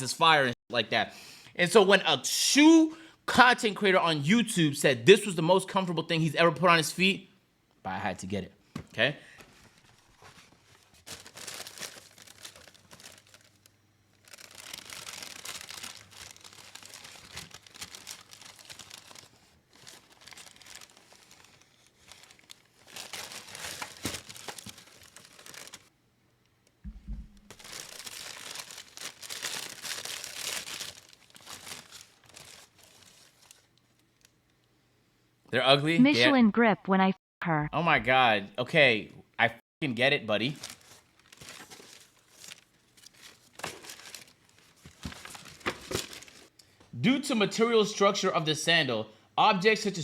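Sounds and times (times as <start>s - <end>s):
packaging crinkling and tearing: 9.6s - 25.9s, 27.5s - 34.3s, 40.5s - 46.5s
low thump: 26.9s - 27.5s.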